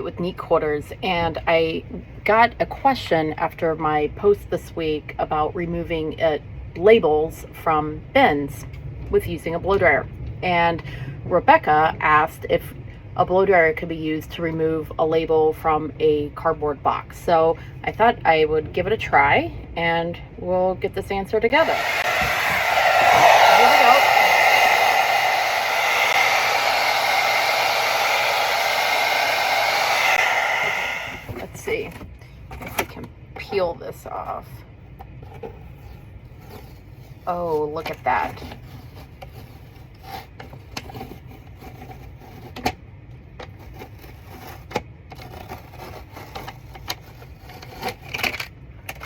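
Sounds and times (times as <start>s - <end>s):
blow dryer running: 21.5s - 31.5s.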